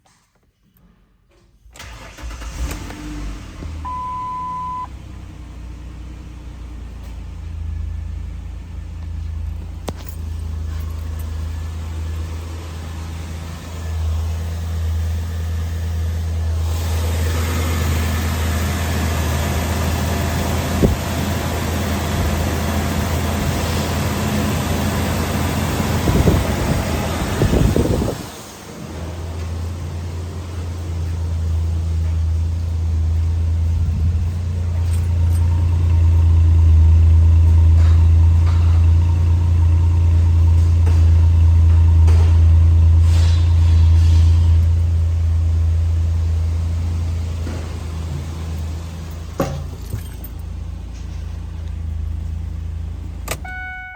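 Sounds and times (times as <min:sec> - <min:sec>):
car engine idling: 0:01.8 - 0:53.9
short single-tone beep: 0:03.9 - 0:04.9, 0:53.4 - 0:53.9.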